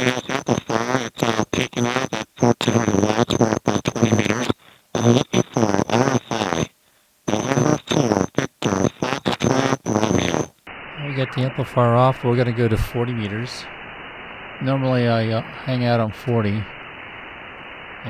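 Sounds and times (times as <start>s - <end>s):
high radio whine: 0.0s - 6.7s, 7.3s - 18.0s
garbled radio speech: 9.3s - 13.7s, 14.6s - 16.8s.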